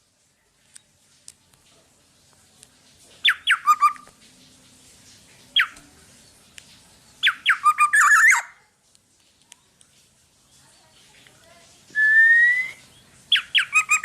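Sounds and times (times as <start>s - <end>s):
bird whistling downward notes: 12.0s - 14.0s.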